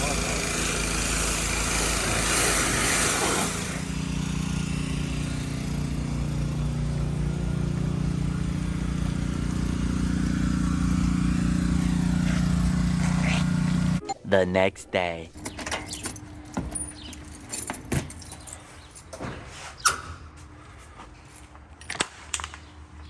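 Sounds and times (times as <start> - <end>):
car engine idling: 3.8 - 14.0.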